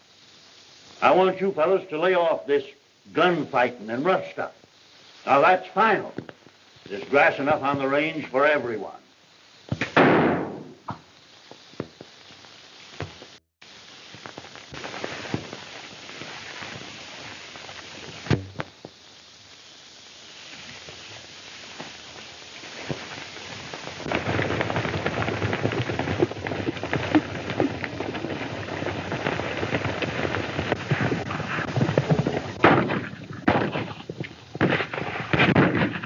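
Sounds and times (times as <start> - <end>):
old film soundtrack hiss: 0.0 - 36.0
single gunshots: 9.8 - 10.9.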